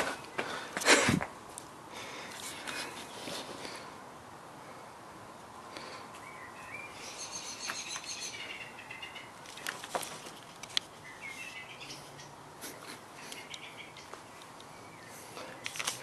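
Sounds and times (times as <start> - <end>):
songbird twittering: 6.2 - 9.7, 11.0 - 12.4, 13.3 - 15.3.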